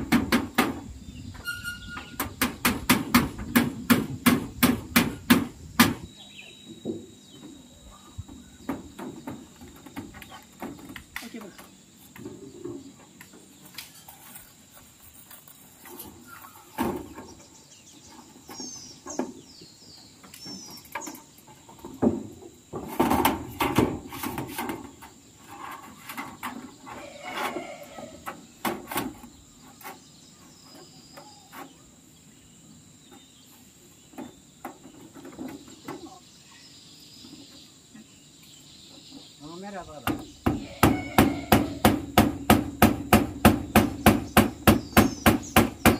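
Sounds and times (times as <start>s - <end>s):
knocks and rattles of hand work: 0.0s - 6.1s, 8.2s - 14.4s, 20.2s - 27.6s, 28.2s - 31.7s, 34.1s - 36.2s, 40.0s - 45.9s
high insect buzz: 3.3s - 45.9s.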